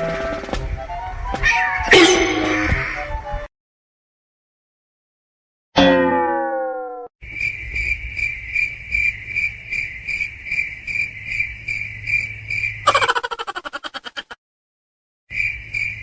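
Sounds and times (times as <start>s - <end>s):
cricket chirping: 7.2s - 14.0s, 15.3s - 16.0s.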